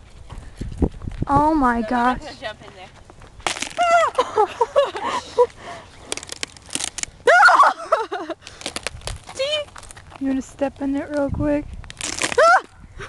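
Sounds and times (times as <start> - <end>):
girls squealing: 3.7 - 5.5, 7.2 - 8.1, 12.3 - 12.8.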